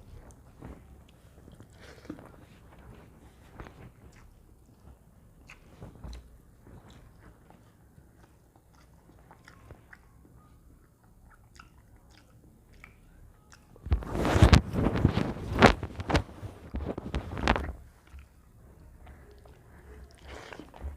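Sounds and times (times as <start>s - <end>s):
chewing clicks and smacks: 4.1s - 7.3s, 8.2s - 10.2s, 10.8s - 13.8s, 18.0s - 18.5s.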